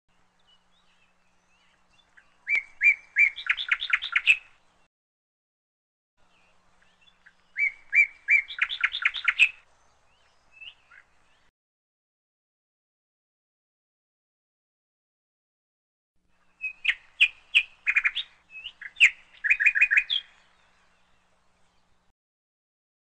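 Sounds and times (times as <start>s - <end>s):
faint bird chirps: 0.1s - 4.6s, 6.2s - 11.5s, 16.3s - 22.1s
songbird singing: 0.1s - 4.9s, 6.2s - 11.5s, 16.2s - 22.1s.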